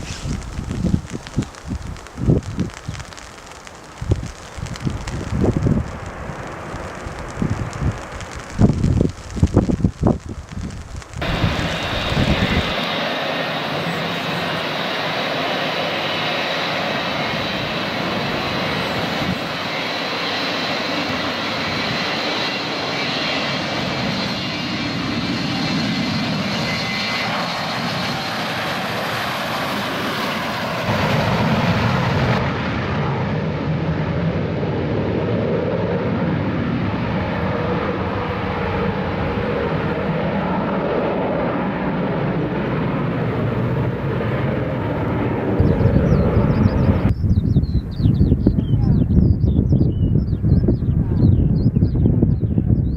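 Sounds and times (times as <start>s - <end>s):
jet engines whining: 11.0s - 47.2s.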